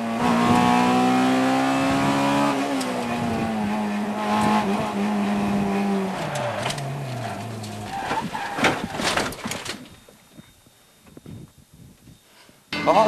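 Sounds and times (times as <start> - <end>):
car engine at high revs: 0.0 - 8.0.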